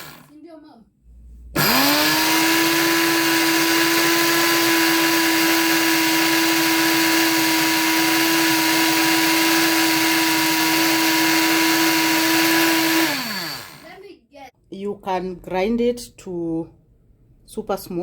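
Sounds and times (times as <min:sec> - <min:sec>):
blender motor whining: 0:00.0 - 0:00.3, 0:01.6 - 0:14.0.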